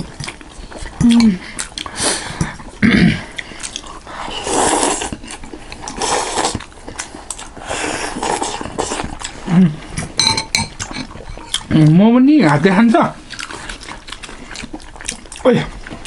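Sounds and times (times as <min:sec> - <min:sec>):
slurping noodle soup: 0:00.2 - 0:10.2.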